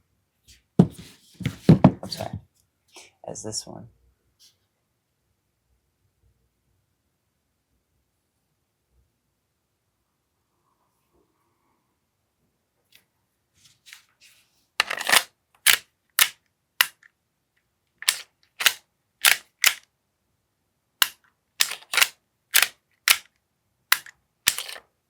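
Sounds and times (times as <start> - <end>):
airsoft pistol pops: 15.6 - 17.0.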